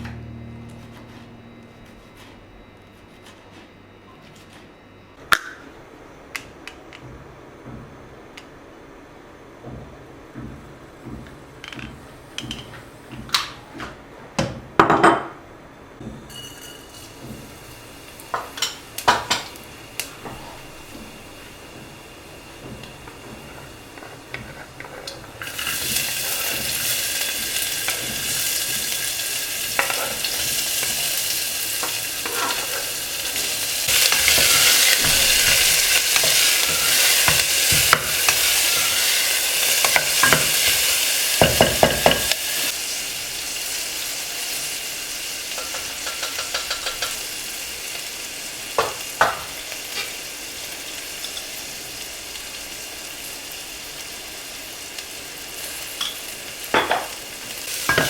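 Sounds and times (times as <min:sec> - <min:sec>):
food sizzling in oil: 0:16.3 - 0:58.0
spoon knocking against pan: 0:41.4 - 0:42.3.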